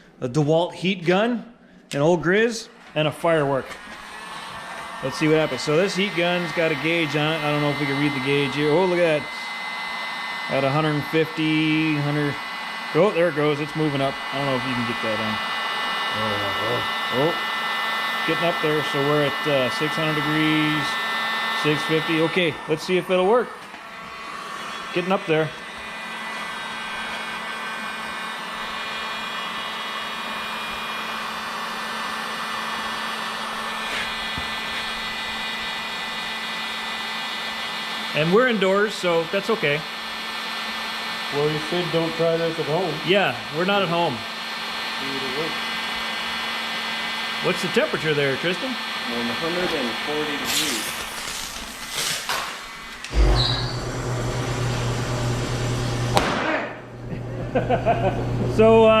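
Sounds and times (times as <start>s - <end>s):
fan motor whine: 2.3s - 59.0s
heat gun blowing air: 3.2s - 56.8s
heat gun switching on thump: 56.1s - 56.8s.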